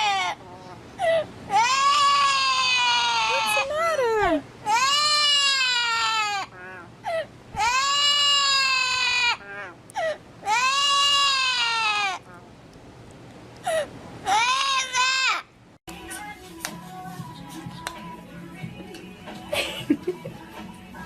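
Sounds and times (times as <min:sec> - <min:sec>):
parrot wailing cries: 0:00.0 - 0:12.4, 0:14.2 - 0:15.5.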